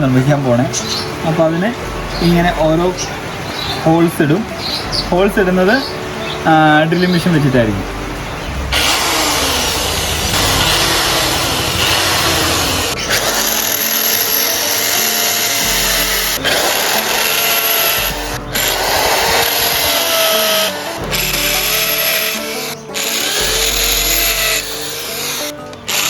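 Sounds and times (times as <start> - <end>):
electric drill boring: 8.7 - 26.0.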